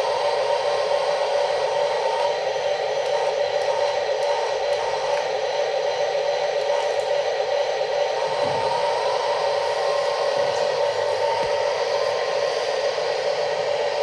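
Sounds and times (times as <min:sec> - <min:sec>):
toy electric motors whirring: 0:00.0 - 0:05.4, 0:08.1 - 0:13.9.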